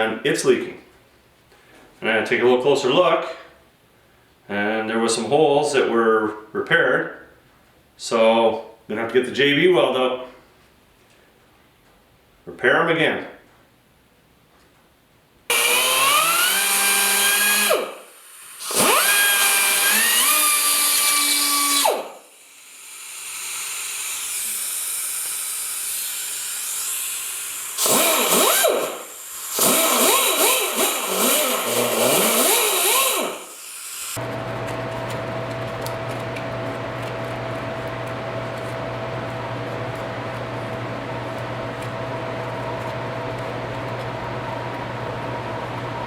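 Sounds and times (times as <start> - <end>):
power drill spinning up: 15.5 - 36.0
steady machine hum: 34.2 - 46.0.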